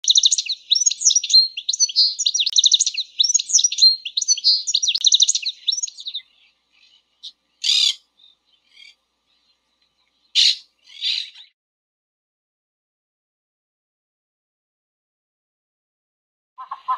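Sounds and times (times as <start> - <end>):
parakeet calls: 0.0 - 6.2, 7.6 - 8.0, 10.4 - 11.5
finch twittering song: 0.0 - 11.5.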